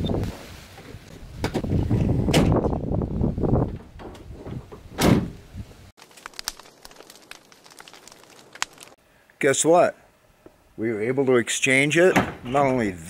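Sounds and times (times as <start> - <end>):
wind noise on microphone: 0.0 - 5.9
truck door slamming: 4.9 - 5.4.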